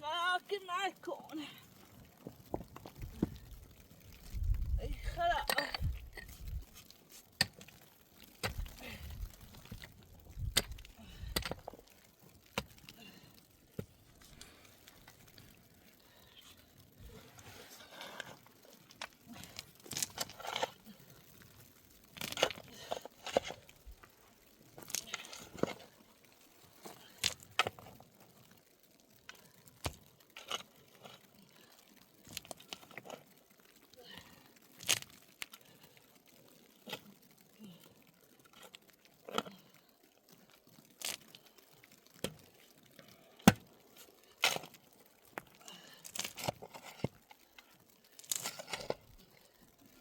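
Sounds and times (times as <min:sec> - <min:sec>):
rustling and crinkling: 0:01.4 - 0:50.0.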